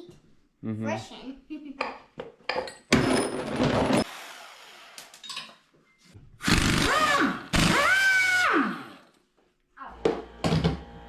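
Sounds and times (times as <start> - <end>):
power tool motor whine: 6.4 - 8.8.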